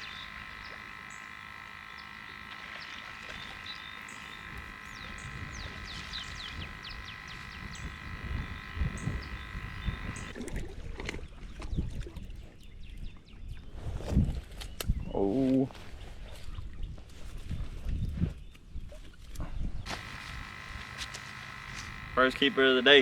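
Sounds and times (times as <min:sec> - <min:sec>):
chorus of calling frogs: 0:00.0 - 0:10.3, 0:19.9 - 0:23.0.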